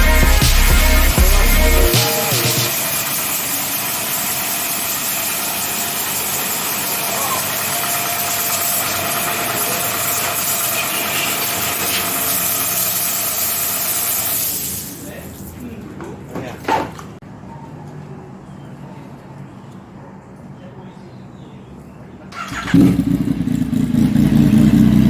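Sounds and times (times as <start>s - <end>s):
thin steady tone: 0.0s - 15.2s.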